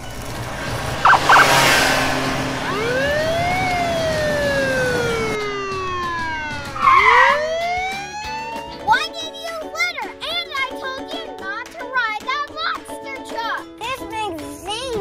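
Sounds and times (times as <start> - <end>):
police siren wailing: 1.0 - 9.0.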